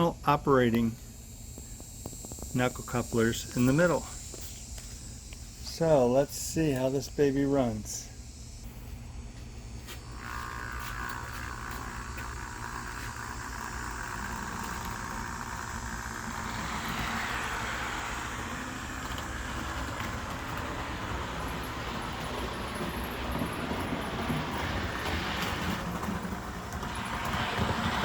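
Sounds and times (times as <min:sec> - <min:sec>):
model train motor whirring: 0:01.0 - 0:08.7, 0:09.8 - 0:28.0
wheels rolling on rails: 0:09.8 - 0:28.0.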